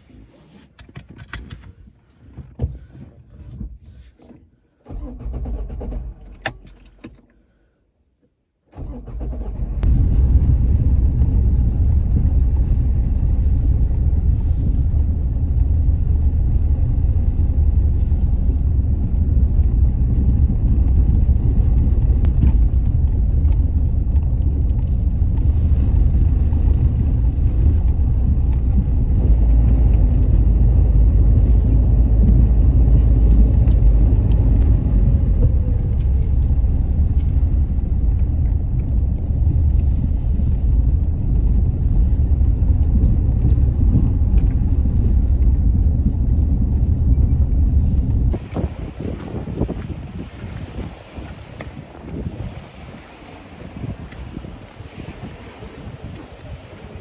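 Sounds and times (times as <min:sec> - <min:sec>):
loud low rumble: 0:09.8 - 0:50.5.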